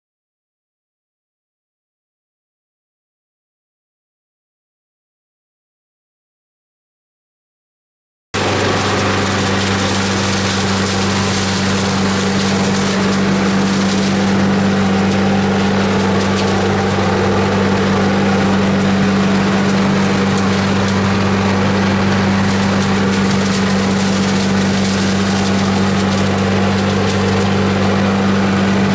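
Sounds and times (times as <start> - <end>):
leaves crackling through vacuum: 8.4 - 28.9
vacuum humming with rushing air: 8.4 - 28.9.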